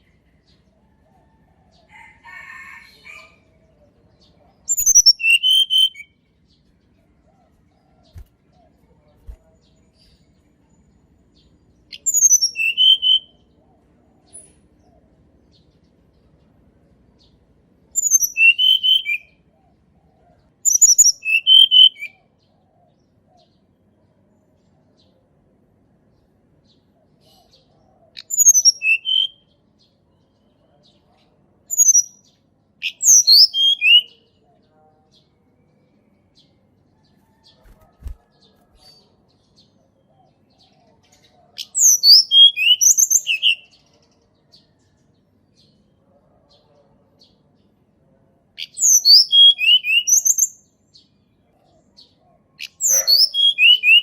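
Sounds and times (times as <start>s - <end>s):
songbird singing high falling notes: 4.7s - 6.2s, 11.9s - 13.4s, 18.0s - 19.3s, 20.7s - 22.2s, 28.2s - 29.5s, 41.6s - 43.8s, 48.6s - 50.7s, 52.8s - 54.0s.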